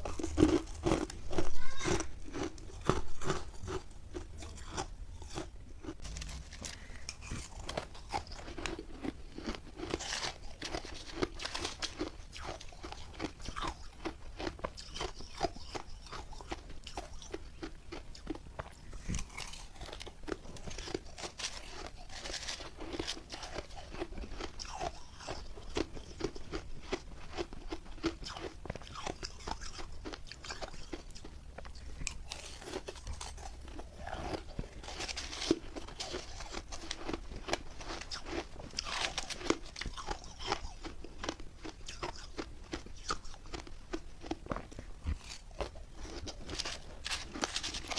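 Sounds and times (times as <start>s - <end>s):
ice crunching while chewed: 0.0s - 47.9s.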